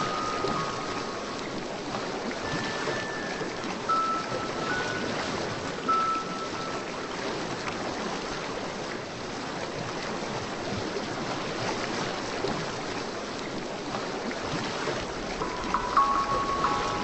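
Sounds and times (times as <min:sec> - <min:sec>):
bell-like music notes: 0:00.0 - 0:01.7, 0:02.5 - 0:07.2, 0:15.4 - 0:17.0
rushing water: 0:00.0 - 0:17.0.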